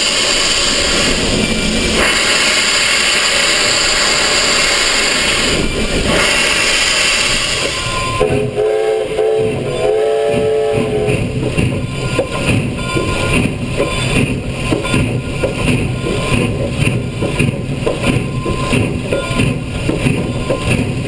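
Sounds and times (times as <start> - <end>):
loud steady rushing noise: 0.0 - 21.0
steam whistle blasts: 6.2 - 11.3.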